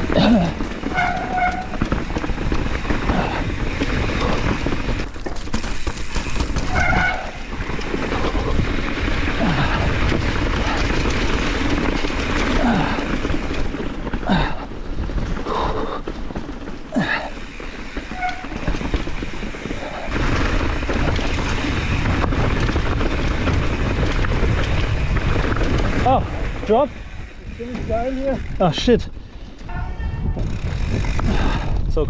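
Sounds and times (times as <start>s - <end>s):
tyre noise: 0.0s - 29.1s
bike rattling over rocks: 0.0s - 31.8s
wind rush on microphone: 0.0s - 32.0s
brief squeals: 0.8s - 1.9s, 18.1s - 18.8s.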